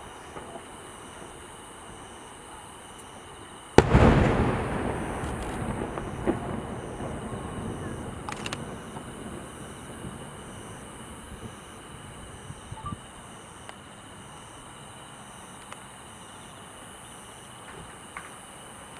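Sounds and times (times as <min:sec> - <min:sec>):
insects chirping: 0:00.0 - 0:18.9
faint clicks: 0:08.2 - 0:09.0, 0:15.6 - 0:15.8.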